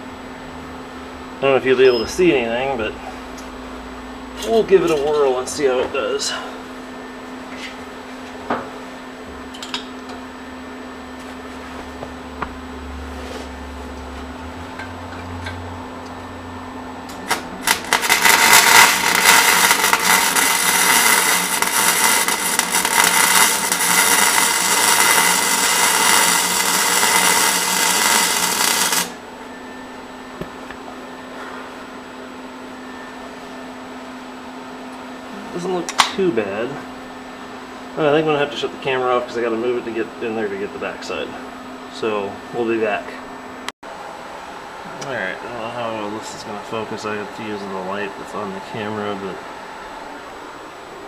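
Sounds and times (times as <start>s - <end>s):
welder humming: 1.4s - 34.2s
welding arc crackling: 17.1s - 29.2s.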